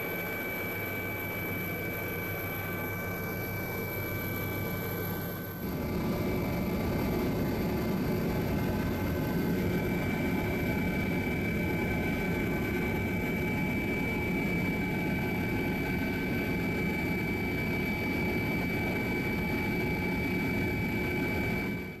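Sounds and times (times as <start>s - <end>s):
helicopter engine and rotor: 0.0s - 22.0s.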